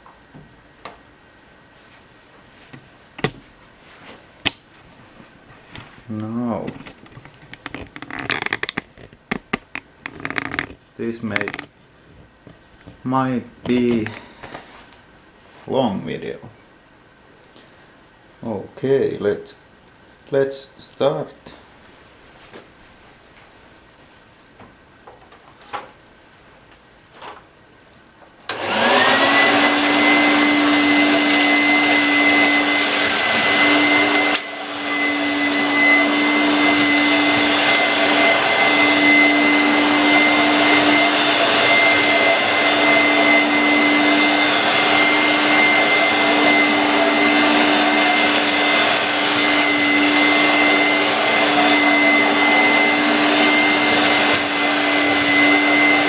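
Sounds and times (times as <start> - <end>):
vacuum cleaner motor whining: 28.5 - 56.0.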